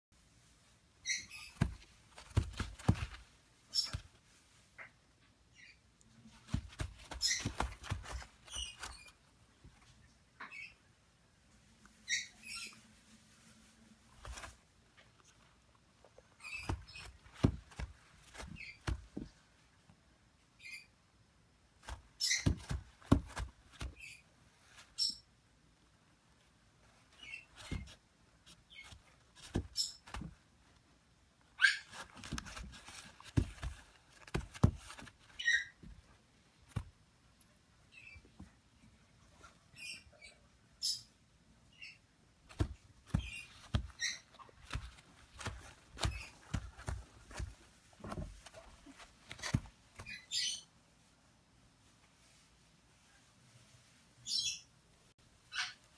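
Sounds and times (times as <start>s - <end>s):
parrot chick squeaky calls: 1.0s - 1.6s, 12.0s - 12.8s, 31.6s - 32.0s, 35.4s - 35.8s, 55.5s - 55.8s
parrot chick squeaky peeps: 1.0s - 1.6s, 7.1s - 7.7s, 12.0s - 12.8s, 22.2s - 22.6s, 31.6s - 32.0s, 35.3s - 35.8s, 43.2s - 44.5s, 50.0s - 50.7s, 54.2s - 54.7s, 55.5s - 55.9s
knocks and scuffs: 1.3s - 4.2s, 6.2s - 9.8s, 14.1s - 15.4s, 16.0s - 19.4s, 21.8s - 24.9s, 27.2s - 30.8s, 31.6s - 37.0s, 42.4s - 50.2s.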